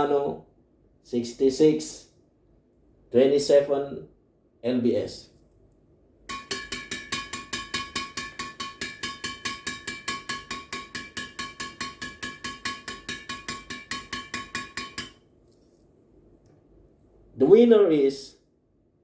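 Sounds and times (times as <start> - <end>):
badminton racket strings pinging: 6.3 - 15.2.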